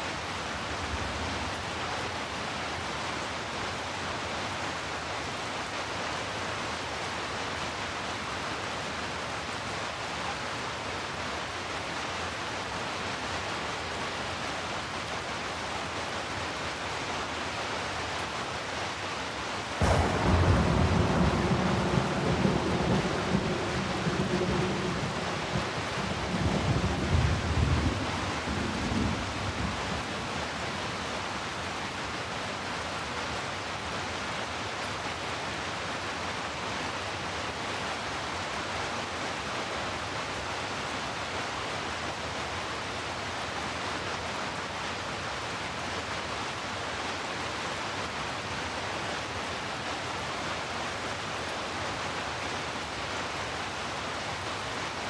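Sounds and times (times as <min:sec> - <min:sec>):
heavy rain hiss: 0:00.0 - 0:55.0
low thunder rumble: 0:19.8 - 0:30.2.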